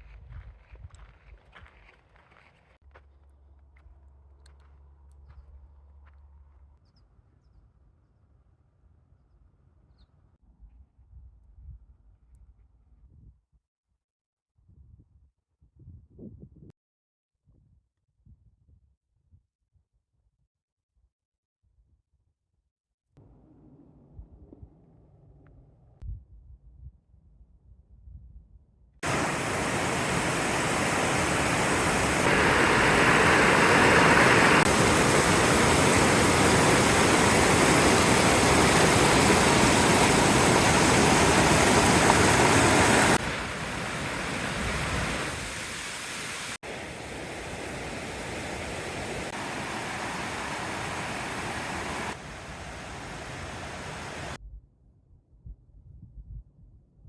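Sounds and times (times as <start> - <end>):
rushing water: 29.0 - 54.4.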